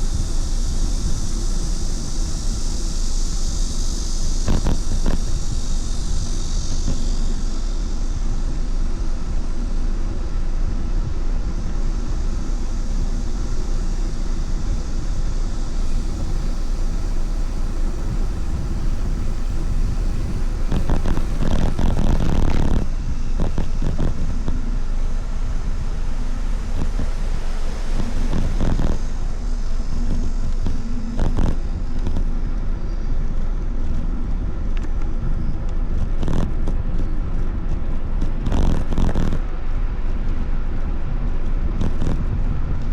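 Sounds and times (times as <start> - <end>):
wind rumble on microphone: 0.0 - 42.9
road noise: 15.8 - 32.8.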